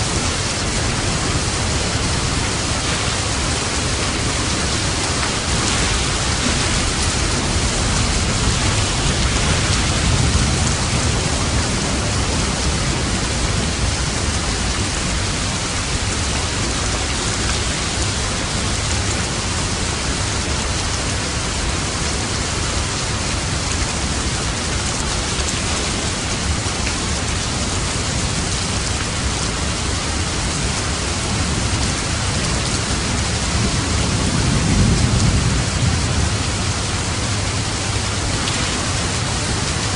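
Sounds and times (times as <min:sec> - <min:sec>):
low thunder rumbling: 0:00.0 - 0:22.2, 0:30.6 - 0:39.9
heavy rain falling: 0:00.0 - 0:39.9.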